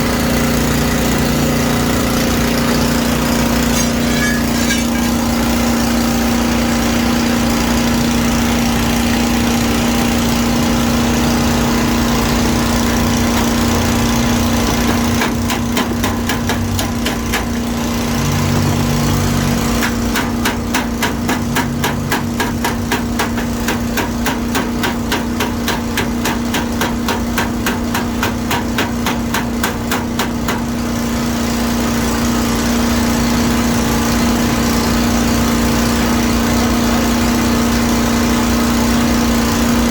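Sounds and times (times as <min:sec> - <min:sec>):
steady machine hum: 0:00.0 - 0:14.5
hammer tapping sheet metal: 0:03.4 - 0:05.8, 0:19.8 - 0:30.7.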